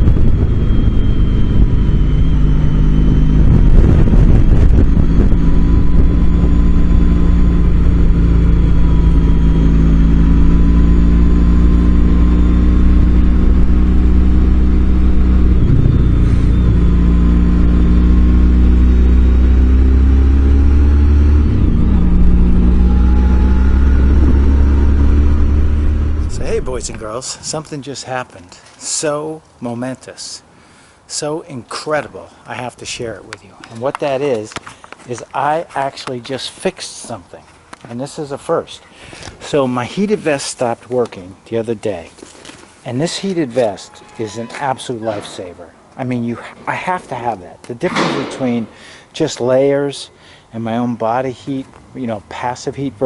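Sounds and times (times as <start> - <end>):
motorcycle engine running: 0.0 - 27.1.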